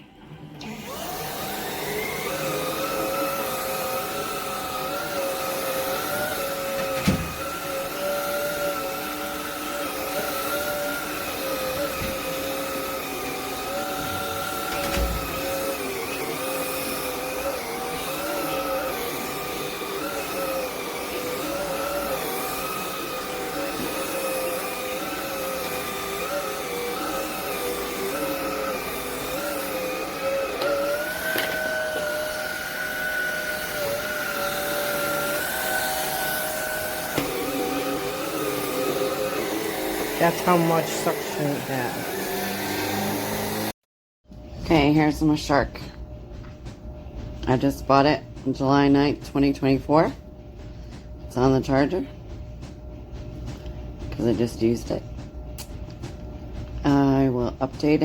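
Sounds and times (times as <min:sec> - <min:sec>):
vacuum motor whine: 0:00.0 - 0:43.8.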